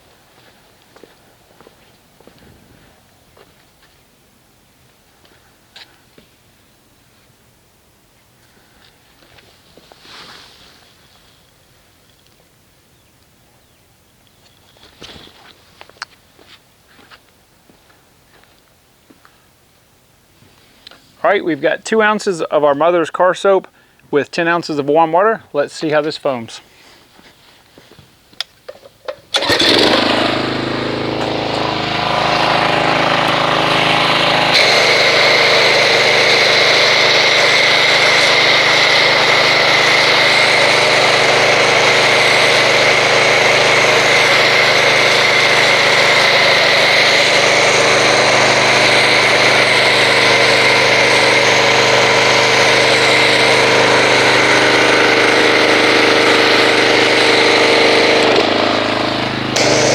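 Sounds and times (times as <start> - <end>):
pressure washer running: 29.3 - 59.9.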